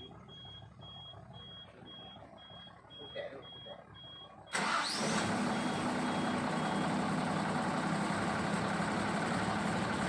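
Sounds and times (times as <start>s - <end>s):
faint reversing alarm beeps: 0.0s - 4.7s, 5.5s - 7.0s
heavy diesel engine running: 0.0s - 10.0s.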